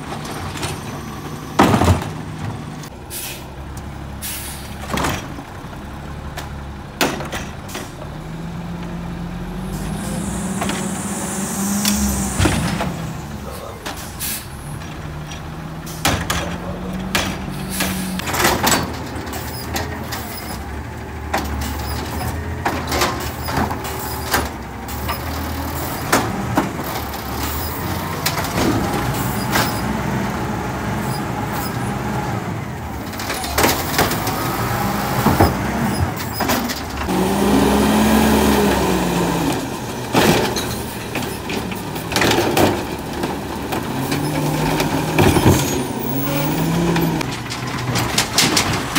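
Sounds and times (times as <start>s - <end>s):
bins banging against truck: 0.0s - 2.9s, 6.4s - 8.2s, 9.6s - 30.2s, 32.9s - 37.2s, 39.5s - 48.9s
garbage truck engine and hydraulics: 0.0s - 48.9s.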